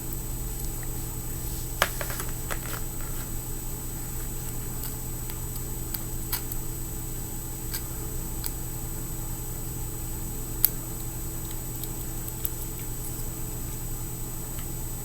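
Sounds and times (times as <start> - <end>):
steady low hum: 0.0 - 15.0
small parts clicking and tapping: 1.8 - 3.3.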